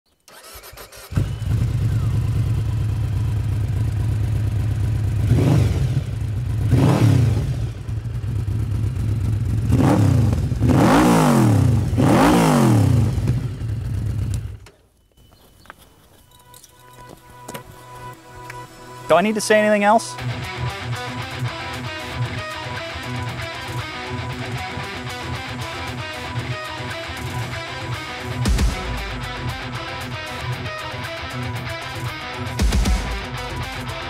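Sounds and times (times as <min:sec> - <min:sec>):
motorcycle engine revving: 0:00.3 - 0:14.6.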